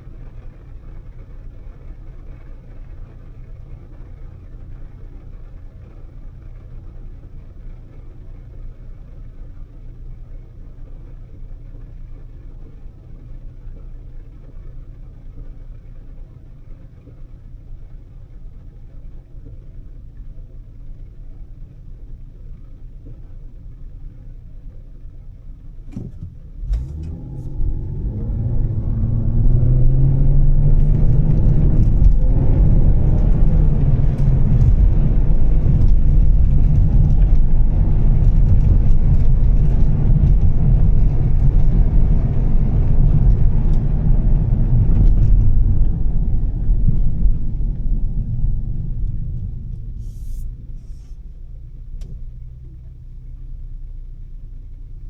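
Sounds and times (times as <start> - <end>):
car engine rumbling: 0.0 - 55.0.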